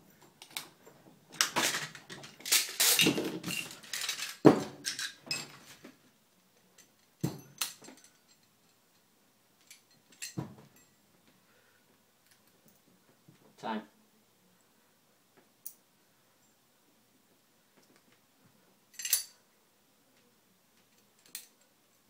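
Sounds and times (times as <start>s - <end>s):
metal parts scraping and clicking: 1.4s - 5.6s, 18.9s - 19.4s, 20.8s - 21.7s.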